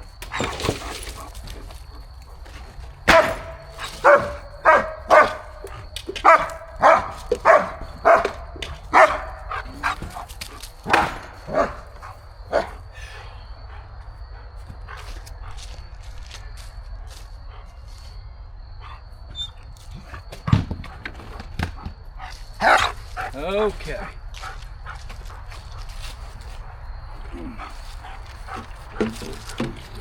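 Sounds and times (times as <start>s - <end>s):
dog barking: 3.1s - 10.3s, 10.9s - 12.8s, 22.2s - 23.3s.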